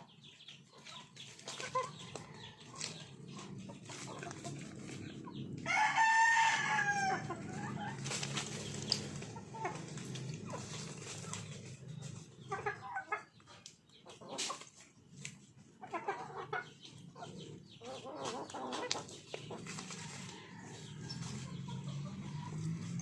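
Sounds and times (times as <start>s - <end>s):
chickens clucking: 0.0s - 23.0s
rooster crowing: 5.6s - 7.4s.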